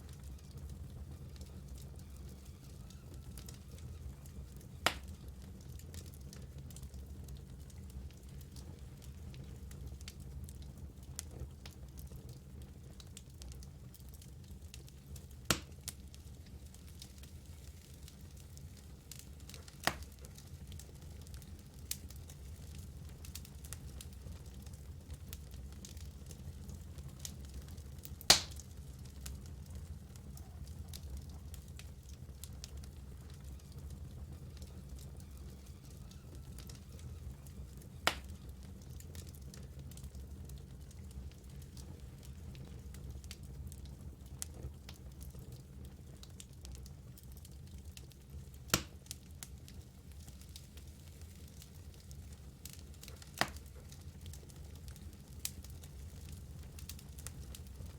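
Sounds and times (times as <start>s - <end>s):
wood fire rumbling and crackling: 0.0s - 57.9s
logs popping: 28.3s - 28.6s.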